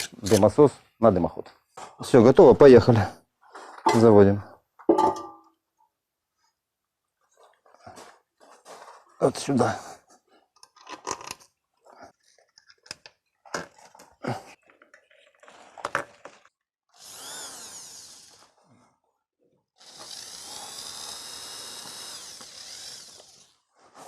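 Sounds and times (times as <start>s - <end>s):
knocks and clicks of tools: 4.8s - 5.5s
electric drill-driver whining: 16.9s - 18.6s, 19.8s - 23.6s.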